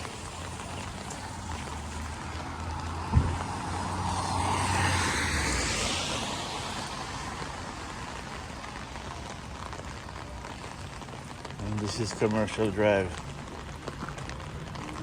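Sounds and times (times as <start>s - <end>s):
tyres hissing on wet pavement: 0.0s - 15.0s
dull thump: 3.1s - 3.4s.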